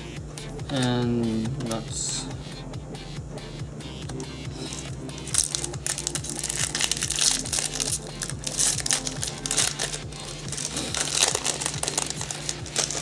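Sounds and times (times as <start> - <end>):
background music: 0.0 - 13.0
foil wrapper crinkling and tearing: 4.6 - 13.0.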